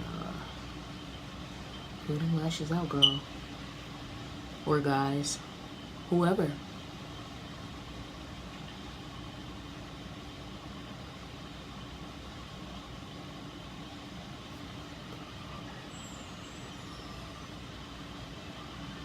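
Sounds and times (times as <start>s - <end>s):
faint steady tone: 0.0s - 19.0s
low machine hum: 0.0s - 19.0s.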